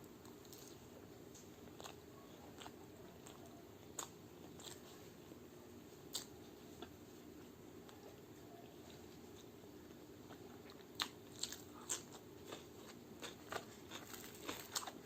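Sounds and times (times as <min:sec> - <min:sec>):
crunchy chewing clicks: 0:00.0 - 0:05.0, 0:06.1 - 0:07.0, 0:08.9 - 0:15.0
faint low hum: 0:00.0 - 0:15.0
wet chewing mouth sounds: 0:01.4 - 0:05.1.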